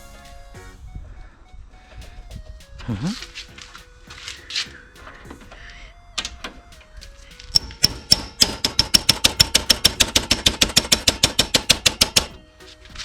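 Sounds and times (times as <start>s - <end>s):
faint background music: 0.0s - 13.0s
rapid ringing metallic tapping: 6.7s - 12.4s.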